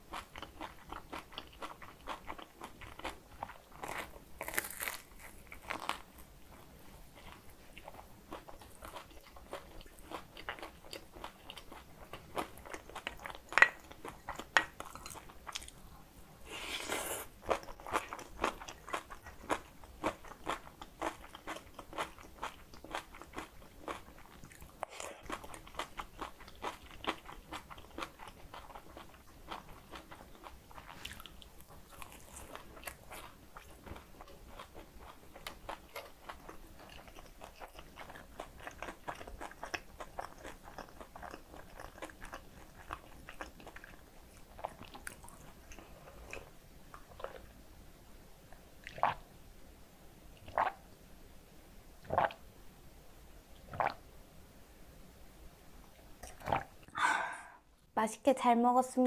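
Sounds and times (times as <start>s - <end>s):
wet chewing and mouth smacks: 17.3s - 47.5s.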